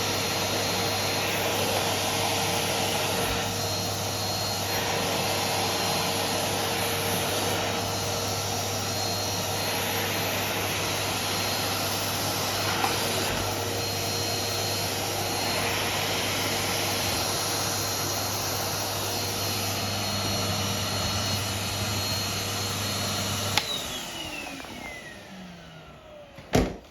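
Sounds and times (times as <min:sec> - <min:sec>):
vacuum cleaner running: 0:00.0 - 0:26.9
vacuum cleaner switch click: 0:23.5 - 0:23.8.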